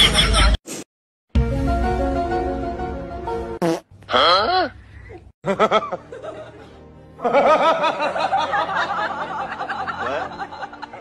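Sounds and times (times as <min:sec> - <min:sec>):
background music: 0:01.3 - 0:03.6, 0:05.4 - 0:11.0.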